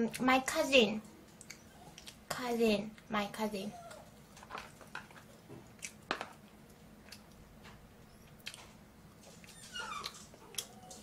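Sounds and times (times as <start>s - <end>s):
mouth clicks and smacks chewing: 1.3s - 2.2s, 5.0s - 7.4s, 8.2s - 11.0s.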